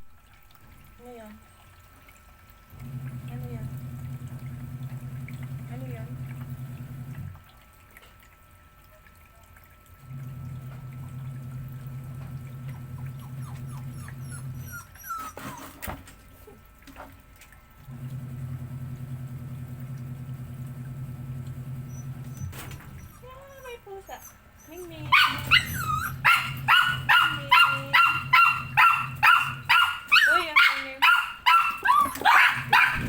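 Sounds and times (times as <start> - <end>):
low motor hum: 2.6 - 7.6, 10.0 - 16.6, 17.8 - 33.0
puppy whimpering: 12.7 - 16.6, 21.9 - 33.0.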